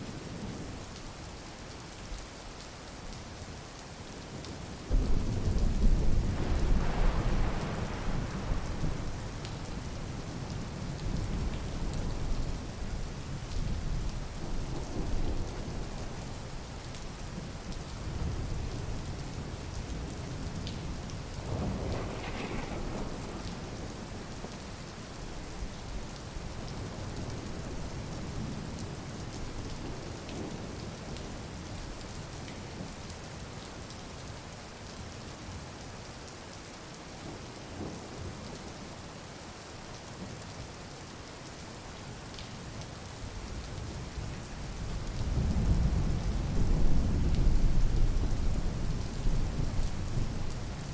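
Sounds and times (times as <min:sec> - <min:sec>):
steady rain: 0:00.0 - 0:50.9
thunder rumbling: 0:04.9 - 0:13.0, 0:21.4 - 0:24.7.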